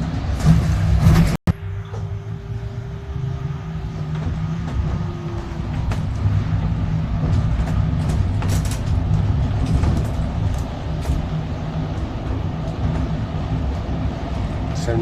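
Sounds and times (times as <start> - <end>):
vehicle rumbling: 0.0 - 15.0
clicks and rattles: 7.2 - 13.9.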